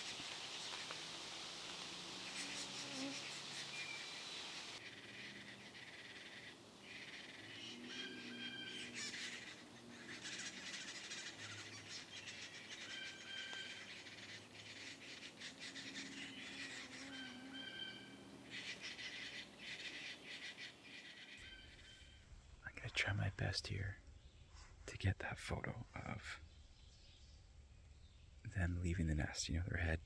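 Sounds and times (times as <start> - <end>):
nestlings raspy chattering: 0.0 - 21.9.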